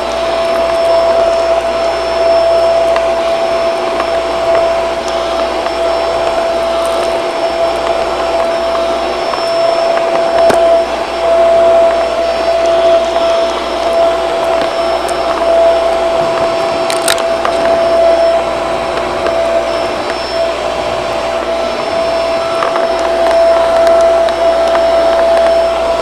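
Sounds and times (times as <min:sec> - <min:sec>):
debris clicking through vacuum: 0:00.0 - 0:26.0
vacuum cleaner running: 0:00.0 - 0:26.0.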